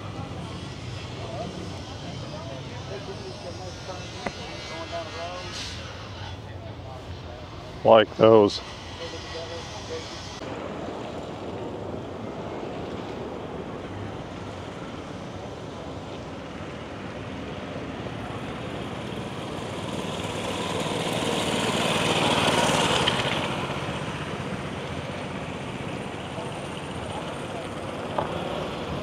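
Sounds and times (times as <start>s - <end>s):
vehicle passing by: 16.9s - 29.0s.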